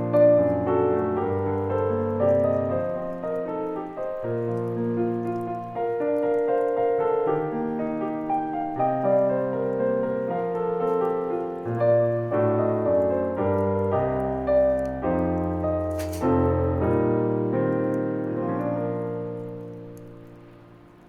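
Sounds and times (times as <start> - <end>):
bonfire crackling: 0.0 - 21.0
solo piano slow chords: 0.0 - 21.0
bonfire pop: 13.3 - 17.0.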